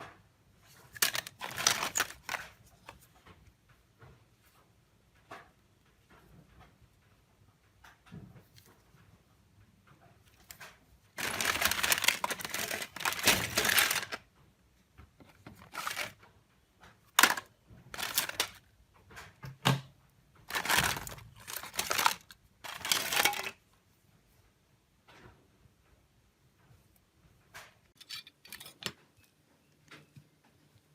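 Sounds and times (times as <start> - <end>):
phone casing scraping and crinkling: 0.8 - 2.6, 11.2 - 14.2, 15.3 - 16.2, 17.2 - 18.6, 20.5 - 23.6.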